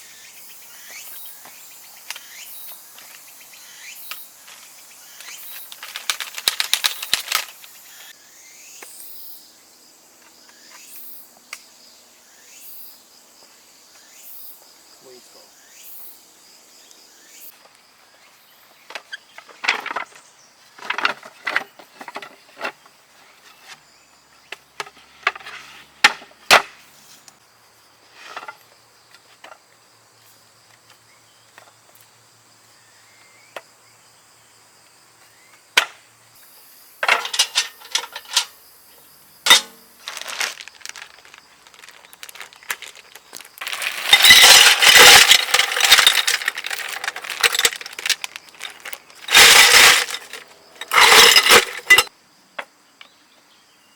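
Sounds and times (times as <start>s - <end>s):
crickets chirring: 0.0s - 53.9s
loud rustling clatter: 37.1s - 38.5s, 39.5s - 52.1s.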